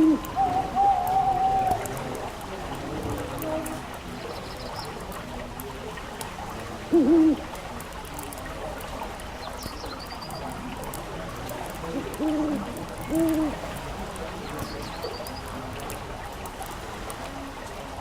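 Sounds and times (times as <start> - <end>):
owl hooting: 0.0 - 1.9, 7.0 - 7.4, 12.0 - 13.6.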